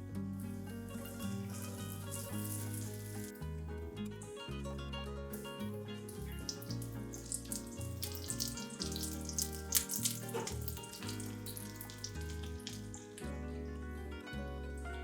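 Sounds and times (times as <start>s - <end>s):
background music: 0.0s - 15.0s
tap water running: 1.0s - 3.3s, 6.1s - 13.3s.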